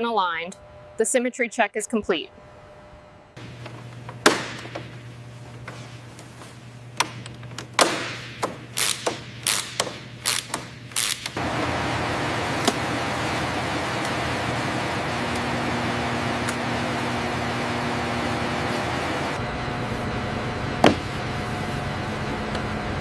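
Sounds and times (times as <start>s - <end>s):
low hum: 0.0s - 1.4s, 2.0s - 7.0s.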